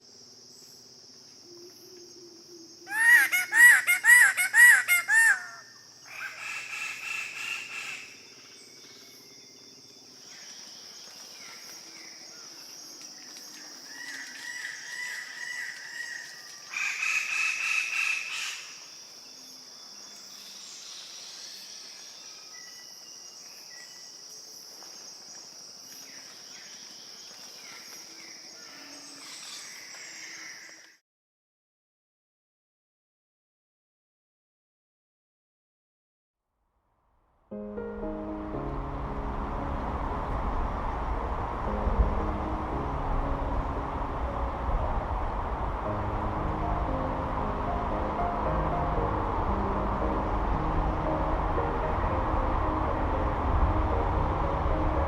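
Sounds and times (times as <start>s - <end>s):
fowl calling: 2.9s - 8.1s
steady high hiss: 38.3s - 55.0s.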